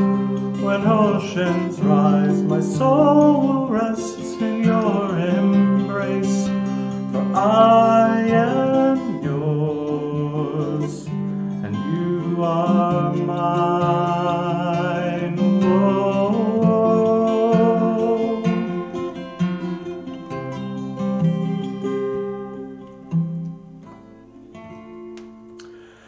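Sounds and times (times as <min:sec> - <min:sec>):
man singing worship song: 0:00.0 - 0:18.7
strummed acoustic guitar: 0:00.0 - 0:26.0.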